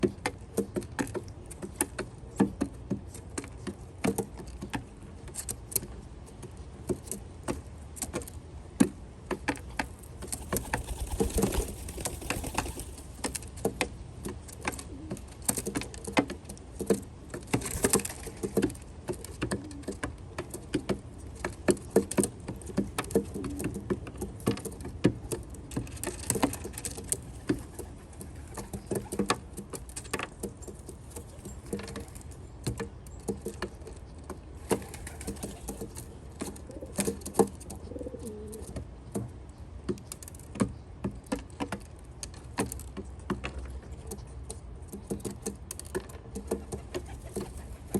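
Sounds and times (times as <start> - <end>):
pigeons pecking on boards: 0.0 - 47.9
seeds rattling: 9.8 - 13.4.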